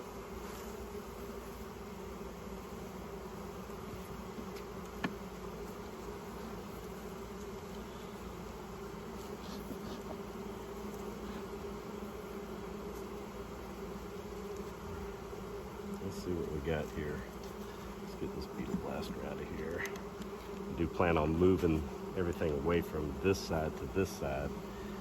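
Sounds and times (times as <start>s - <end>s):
bees buzzing: 0.0s - 25.0s
faint ticks: 14.5s - 14.8s, 19.6s - 20.7s.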